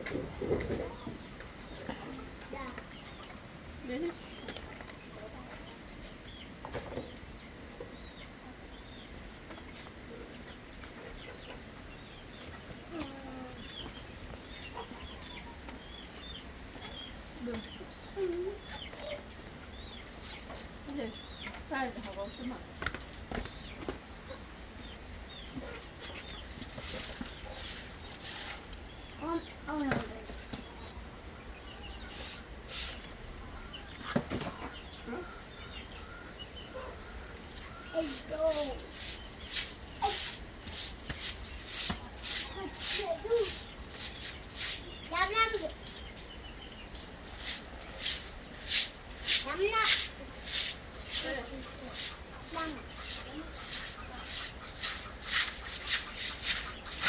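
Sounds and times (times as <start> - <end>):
chickens clucking: 0.0 - 57.0
rustling hisses: 26.2 - 28.8, 32.0 - 33.2, 37.8 - 57.0.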